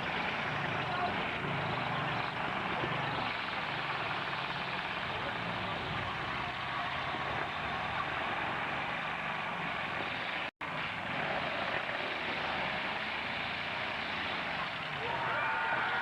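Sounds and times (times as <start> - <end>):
truck engines running: 0.0 - 16.0.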